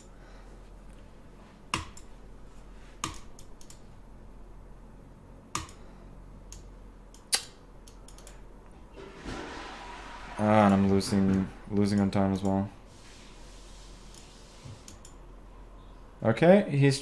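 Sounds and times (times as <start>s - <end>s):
computer mouse clicks: 3.0s - 3.8s, 5.5s - 5.8s, 6.5s - 8.4s, 14.1s - 15.2s.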